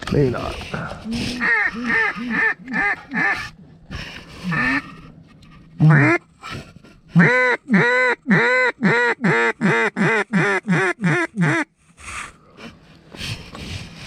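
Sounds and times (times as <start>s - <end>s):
duck call quacks: 1.3s - 3.5s, 4.4s - 4.9s, 5.8s - 6.2s, 7.2s - 11.7s.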